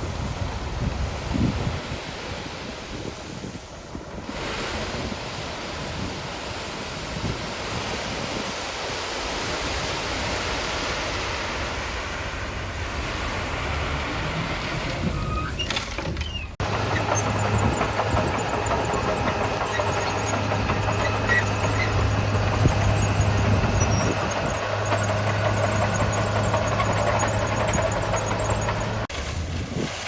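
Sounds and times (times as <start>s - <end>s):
heavy diesel engine droning: 12.5s - 29.1s.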